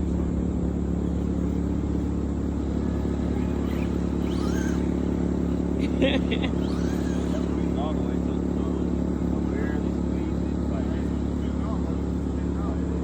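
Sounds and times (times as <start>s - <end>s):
faint whistling glides: 0.0s - 10.3s
low mechanical drone: 0.0s - 13.0s.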